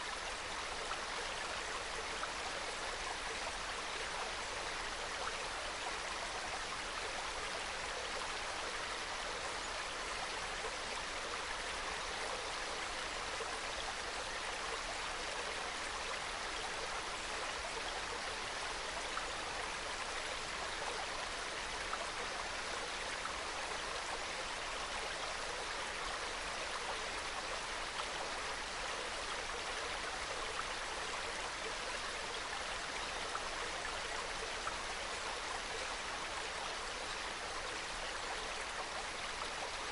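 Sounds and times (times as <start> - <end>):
stream trickling over rocks: 0.0 - 39.9.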